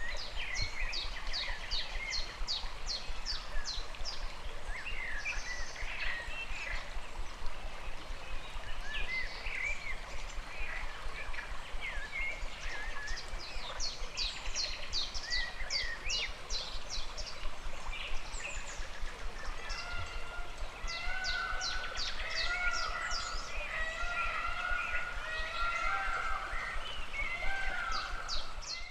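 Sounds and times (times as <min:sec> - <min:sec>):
stream water running: 0:00.0 - 0:28.9
birds calling: 0:19.4 - 0:28.9.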